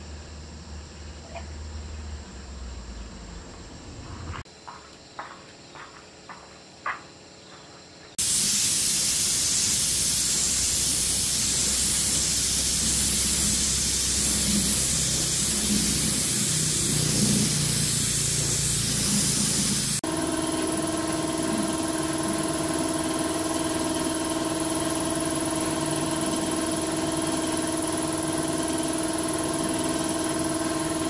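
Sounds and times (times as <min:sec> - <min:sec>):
high-pressure spray hiss: 0:08.2 - 0:20.1, 0:21.4 - 0:27.9.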